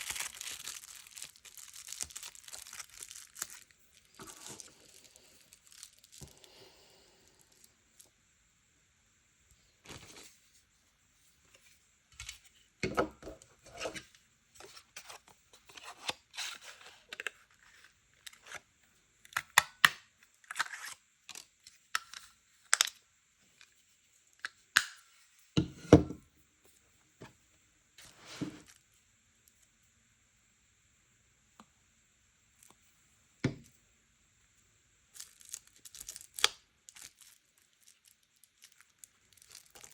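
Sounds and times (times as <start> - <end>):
paper rustling and tearing: 0.0 - 6.1.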